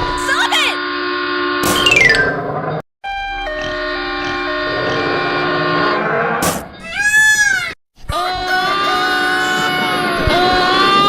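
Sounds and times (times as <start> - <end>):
falling electronic chime notes: 1.7 - 6.0.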